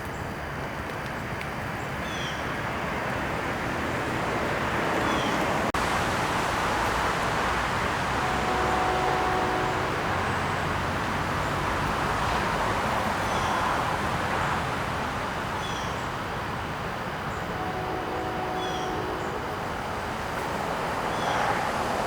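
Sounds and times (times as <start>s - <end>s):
steady rushing background noise: 2.6s - 22.0s.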